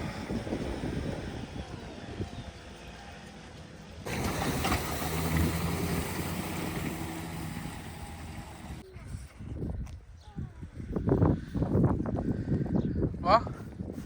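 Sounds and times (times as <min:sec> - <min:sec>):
wind rushing over microphone: 0:00.0 - 0:02.6, 0:04.1 - 0:14.0
low engine hum: 0:00.0 - 0:08.9.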